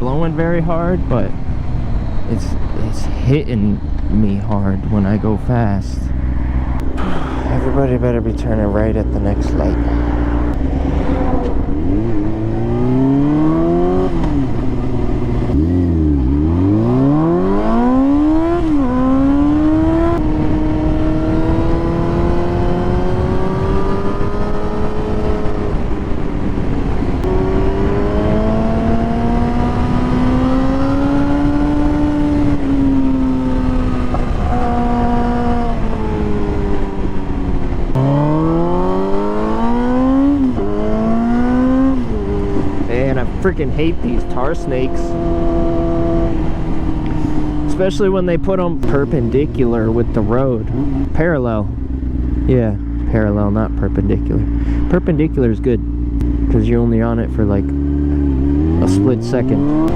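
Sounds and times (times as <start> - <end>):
motorcycle engine revving: 0.0 - 59.9
wind on microphone: 9.4 - 51.1.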